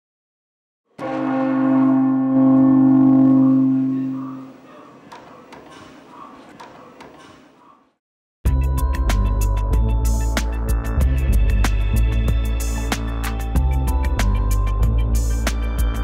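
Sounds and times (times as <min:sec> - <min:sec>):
deep bell-like ringing tone: 0:01.0 - 0:04.5.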